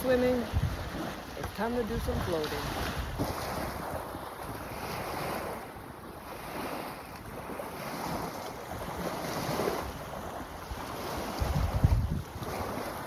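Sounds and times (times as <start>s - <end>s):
lake water lapping: 0.0s - 13.0s
wind buffeting microphone: 0.0s - 13.0s.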